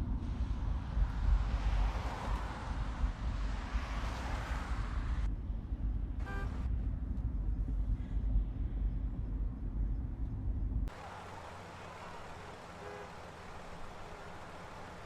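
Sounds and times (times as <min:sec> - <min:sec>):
quiet traffic noise: 0:00.0 - 0:15.0
vehicle engine and tyres rumbling: 0:00.0 - 0:15.0
car horn toot: 0:06.2 - 0:06.6, 0:12.6 - 0:13.2.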